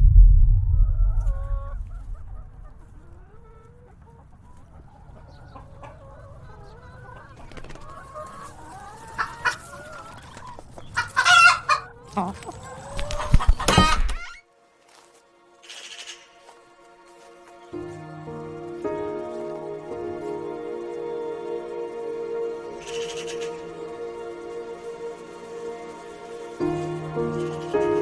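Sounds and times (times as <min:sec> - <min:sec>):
low rumble: 0:00.0 - 0:03.6
chicken clucking: 0:01.4 - 0:14.4, 0:17.8 - 0:28.0
chicken squawk: 0:01.5 - 0:14.4, 0:22.7 - 0:24.2.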